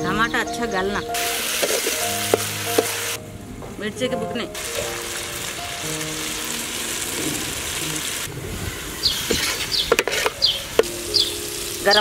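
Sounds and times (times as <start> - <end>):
bird chirping: 0.0 - 3.6, 8.8 - 12.0
food sizzling in hot oil: 1.2 - 3.2, 4.6 - 8.3, 9.0 - 12.0
ladle scraping a steel pot: 1.5 - 3.2, 9.3 - 10.5.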